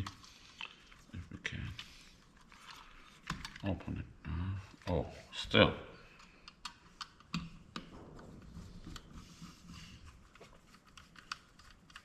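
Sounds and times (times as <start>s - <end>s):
faint clicks of small parts: 0.0s - 3.8s, 6.0s - 8.0s, 10.0s - 12.0s
light scraping of plastic parts: 0.0s - 3.8s, 6.1s - 12.0s.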